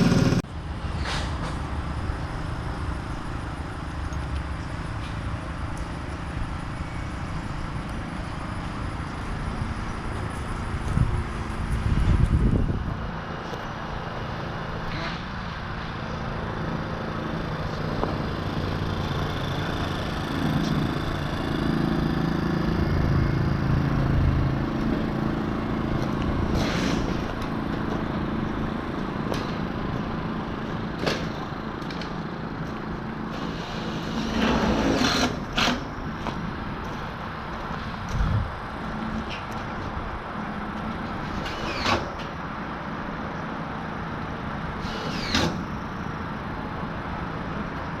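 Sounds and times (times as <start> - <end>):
engine running steadily: 0.0 - 48.0
knocks and clatters of building work: 31.0 - 38.2, 40.8 - 42.4, 44.8 - 45.7.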